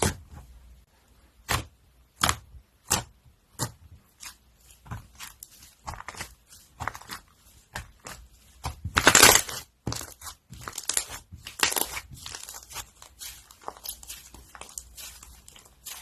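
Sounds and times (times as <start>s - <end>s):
crunchy slime crackling and popping: 5.1s - 16.0s.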